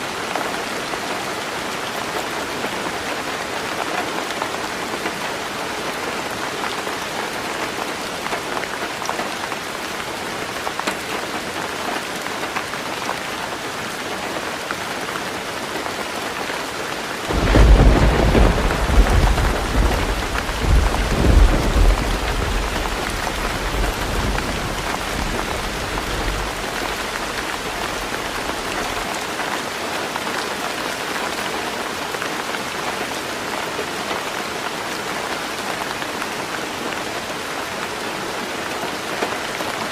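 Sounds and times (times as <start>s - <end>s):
heavy rain on a tin roof: 0.0s - 39.9s
thunder rumbling: 17.3s - 29.1s.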